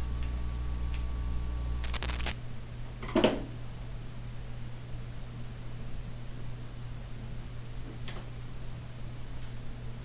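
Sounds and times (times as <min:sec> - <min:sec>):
steady low hum: 0:00.0 - 0:02.8
background hiss: 0:01.8 - 0:02.4.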